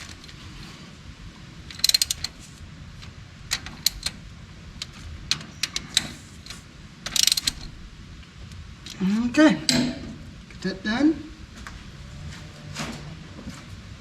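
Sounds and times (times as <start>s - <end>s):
hand tool clicks: 1.7s - 2.4s, 3.5s - 4.2s, 4.8s - 7.7s
metal clicks and clinks: 1.7s - 2.4s, 3.5s - 4.2s, 4.8s - 7.7s.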